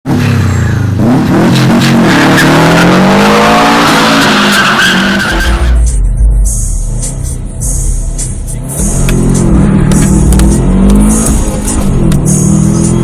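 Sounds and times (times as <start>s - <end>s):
car engine accelerating hard: 0.1s - 13.0s
low engine rumble: 5.5s - 13.0s.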